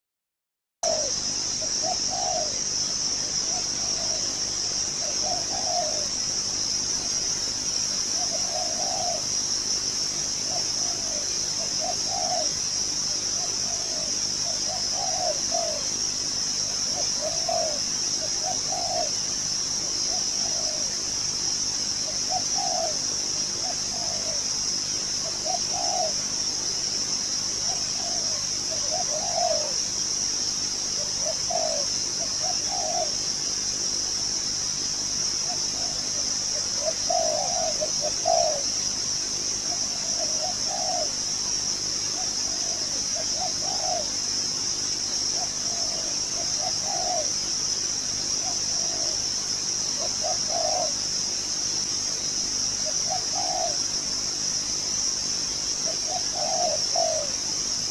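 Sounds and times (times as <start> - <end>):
dove cooing: 0.8 - 6.2, 7.9 - 9.5, 10.2 - 15.9, 16.6 - 19.2, 19.9 - 21.0, 22.0 - 24.5, 25.2 - 26.2, 27.6 - 29.8, 30.9 - 33.2, 35.4 - 38.8, 39.6 - 41.2, 42.1 - 44.2, 45.3 - 47.4, 48.4 - 49.4, 50.0 - 51.1, 52.8 - 53.9, 55.8 - 57.4.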